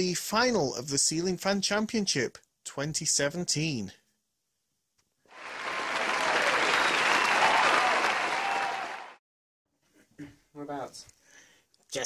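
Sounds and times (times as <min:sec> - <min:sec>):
crowd applause: 0:05.3 - 0:09.2.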